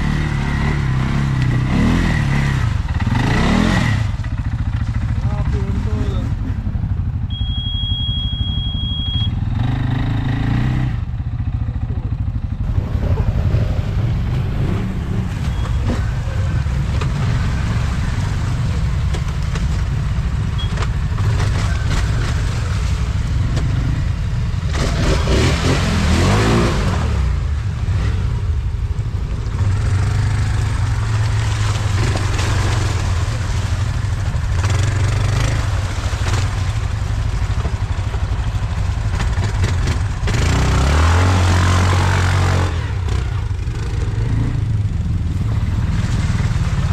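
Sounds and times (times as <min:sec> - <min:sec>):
engine revving: 0:00.0 - 0:04.6, 0:09.5 - 0:11.1, 0:12.6 - 0:28.4, 0:29.6 - 0:36.9, 0:39.1 - 0:46.9
atv engines running: 0:00.0 - 0:46.9.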